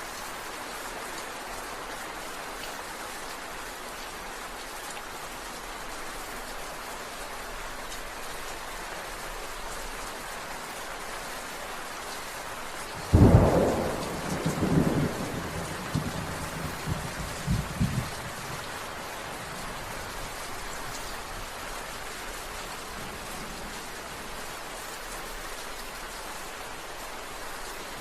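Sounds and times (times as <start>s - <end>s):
steady rain: 0.0s - 28.0s
rolling thunder: 13.0s - 18.7s.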